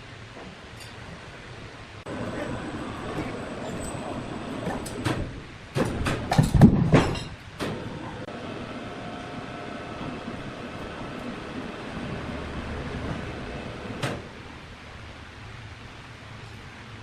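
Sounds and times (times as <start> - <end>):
sawmill machinery running: 2.1 - 5.6, 7.7 - 15.0
loud knocks and clattering: 4.6 - 8.0, 13.0 - 14.4.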